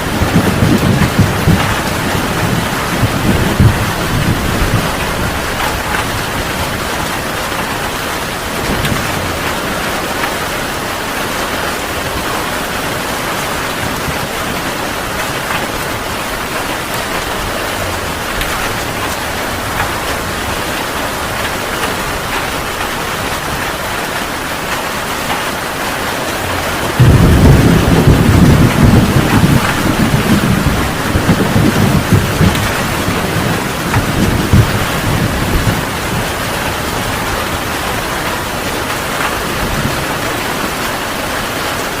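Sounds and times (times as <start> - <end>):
low thunder rumble: 0.0 - 10.3, 26.5 - 40.4
heavy rain falling: 0.0 - 42.0.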